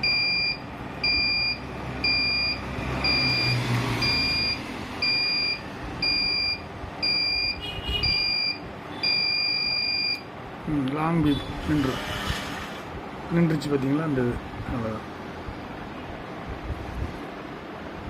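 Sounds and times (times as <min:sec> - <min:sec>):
electronic alarm beeping: 0:00.0 - 0:10.3.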